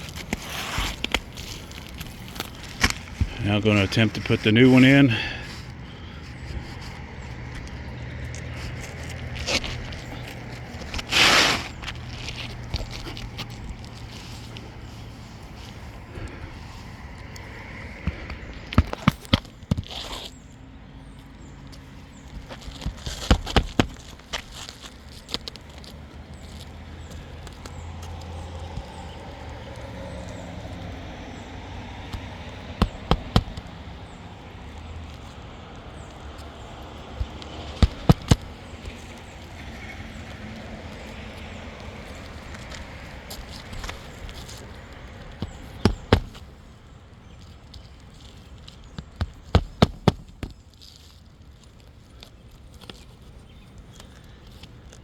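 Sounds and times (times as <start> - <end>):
hammer nailing roof shingle: 22.6 - 24.9, 32.0 - 34.2, 36.7 - 40.2, 41.0 - 46.6, 49.0 - 51.2.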